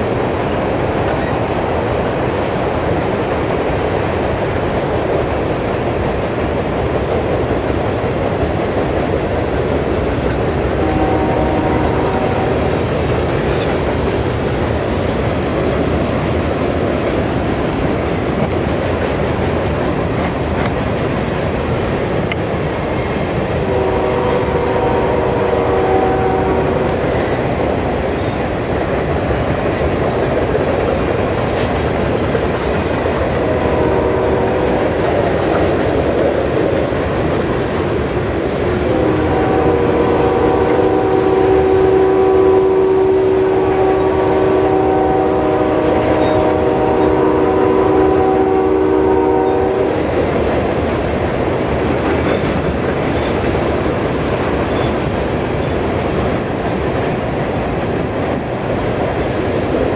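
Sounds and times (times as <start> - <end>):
locomotive horn chord: 10.8 - 12.8, 23.6 - 27.0, 33.4 - 35.0, 38.9 - 49.9.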